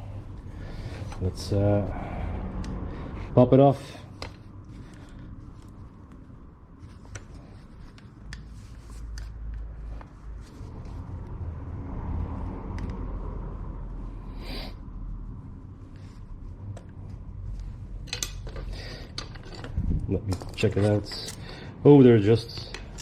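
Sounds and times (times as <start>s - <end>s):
metal parts clicking: 18.0s - 21.5s, 22.5s - 23.0s.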